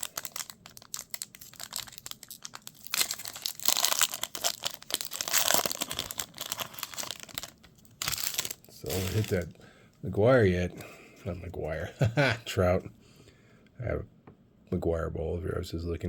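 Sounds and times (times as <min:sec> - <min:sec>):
wrapper tearing and crinkling: 0:00.0 - 0:09.5.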